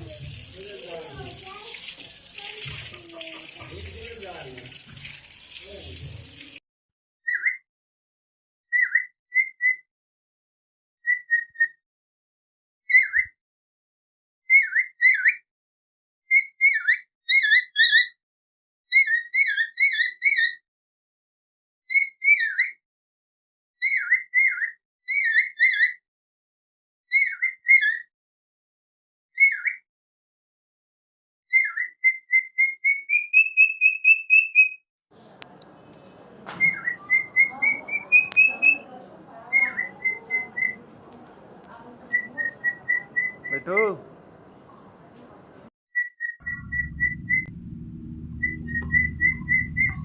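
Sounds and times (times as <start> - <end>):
parakeet chirping: 36.6 - 38.9, 39.5 - 40.8, 48.4 - 50.0.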